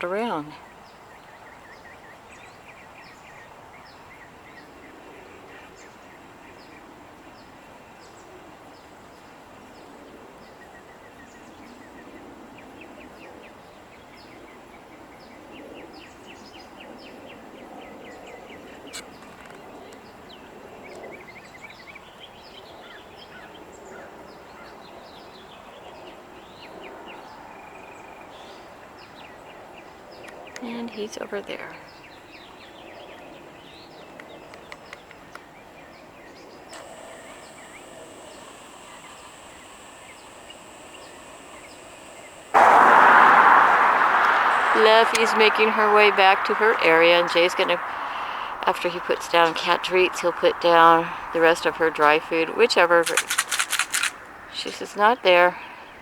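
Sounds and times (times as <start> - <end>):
songbirds chirping and trilling: 0.0 - 53.1
outdoor background hum: 0.0 - 56.0
sharp click: 53.0 - 54.2.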